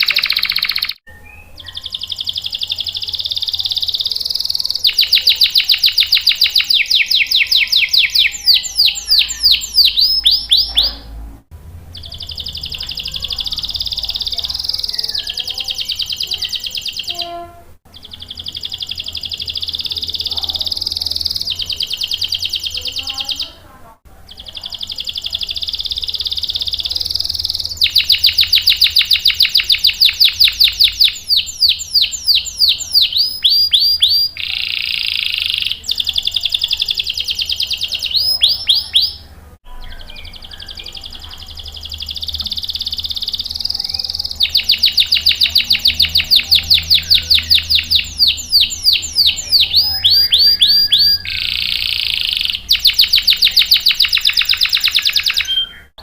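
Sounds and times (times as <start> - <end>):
canary singing in trills: 0.0 - 56.0.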